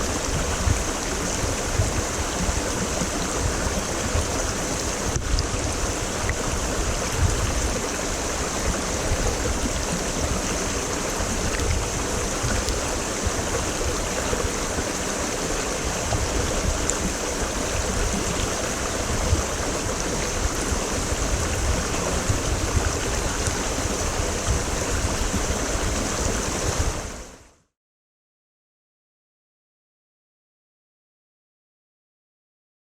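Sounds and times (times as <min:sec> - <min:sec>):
water rushing over rocks: 0:00.0 - 0:27.5.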